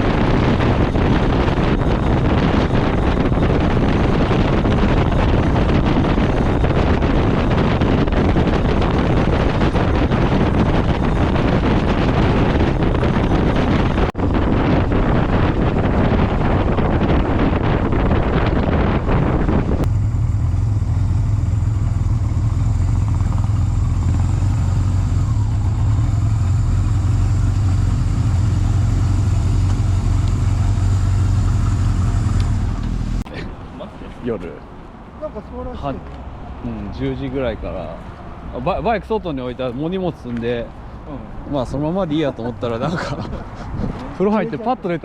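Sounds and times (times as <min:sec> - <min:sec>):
motorcycle engine drone: 0:00.0 - 0:33.4
wind rush over microphone: 0:00.0 - 0:33.6, 0:40.0 - 0:45.0.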